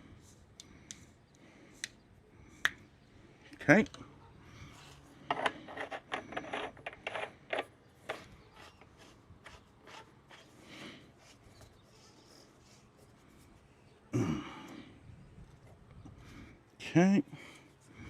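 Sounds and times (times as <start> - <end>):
light ticks and rubbing: 5.3 - 10.5.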